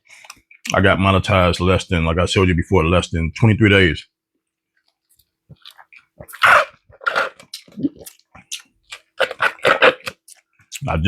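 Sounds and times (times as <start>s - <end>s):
wet chewing: 4.9s - 11.0s.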